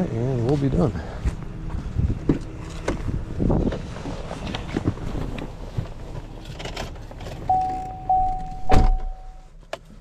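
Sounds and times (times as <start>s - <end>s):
vehicle warning chime: 7.5s - 9.5s
heavy thump: 8.6s - 9.2s.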